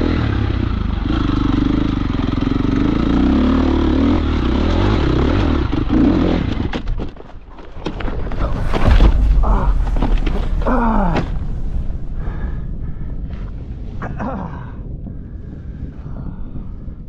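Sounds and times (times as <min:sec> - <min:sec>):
dirt bike engine running: 0:00.0 - 0:07.2
knocks and scraping: 0:06.5 - 0:14.2
heavy thump: 0:08.2 - 0:13.6.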